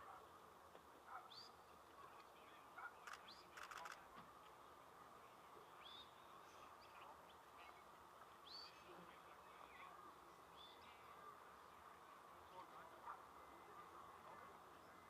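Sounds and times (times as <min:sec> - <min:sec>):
faint bird chirps: 0:05.8 - 0:08.9.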